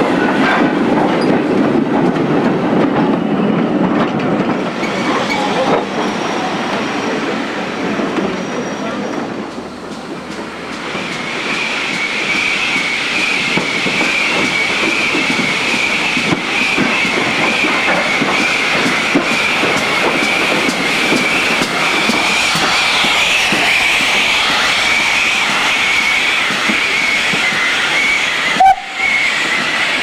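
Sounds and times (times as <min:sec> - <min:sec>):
train wheels rumbling and clicking: 0:00.0 - 0:30.0.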